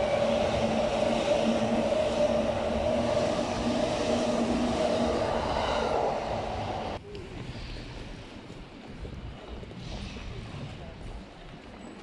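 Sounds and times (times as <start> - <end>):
low hum: 0.0 - 7.0
train rumbling on tracks: 0.0 - 12.0.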